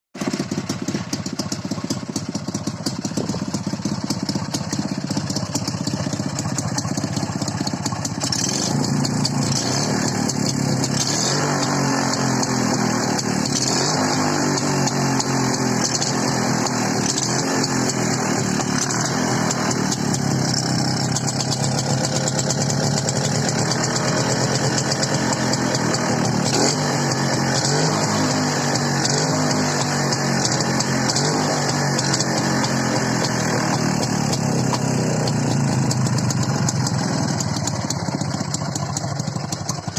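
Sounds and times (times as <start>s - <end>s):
motorcycle engine running: 0.2s - 39.9s.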